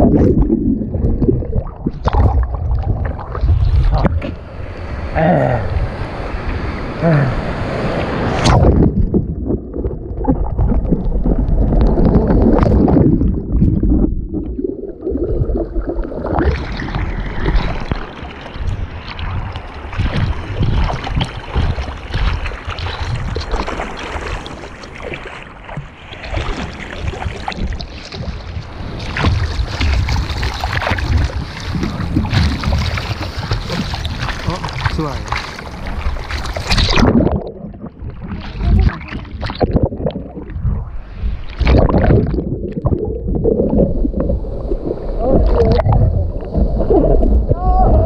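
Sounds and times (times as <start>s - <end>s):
ocean surf: 3.8s - 8.9s, 16.6s - 22.7s, 23.6s - 37.2s
wind buffeting microphone: 16.7s - 23.5s, 27.1s - 48.0s.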